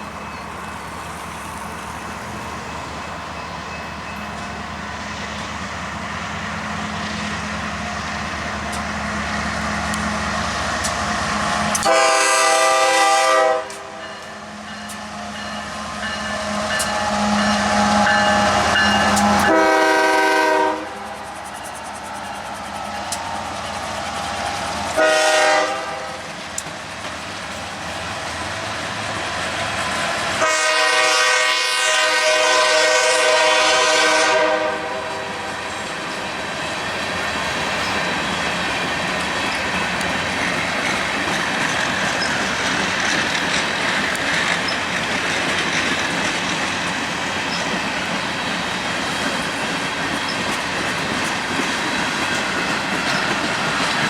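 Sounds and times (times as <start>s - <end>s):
freight cars rumbling and clacking: 0.0s - 12.0s, 26.2s - 30.4s, 35.6s - 54.0s
diesel locomotive horn: 11.1s - 21.3s, 24.9s - 26.4s, 30.4s - 36.2s.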